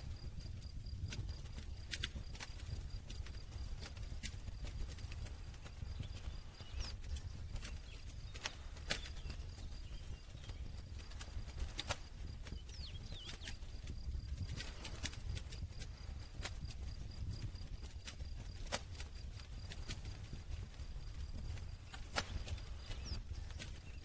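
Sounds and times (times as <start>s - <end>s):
fire rumbling: 0.0s - 24.0s
campfire pops and snaps: 21.9s - 23.7s.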